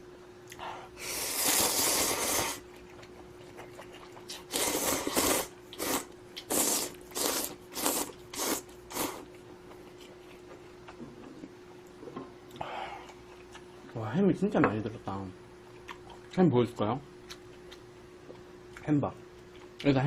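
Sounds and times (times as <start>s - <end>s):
slurping noodles: 1.0s - 2.6s, 4.3s - 9.3s.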